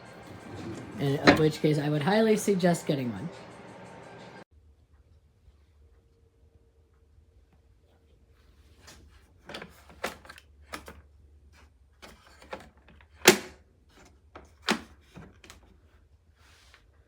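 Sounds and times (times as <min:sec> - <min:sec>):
plastic parts clicking and knocking: 0:09.4 - 0:11.0, 0:12.0 - 0:15.7.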